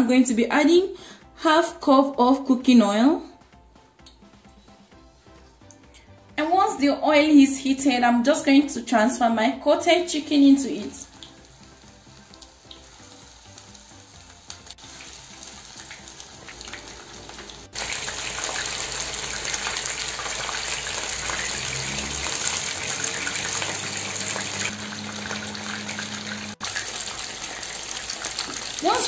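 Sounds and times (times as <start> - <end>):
chicken sizzling in hot oil: 9.8 - 29.0.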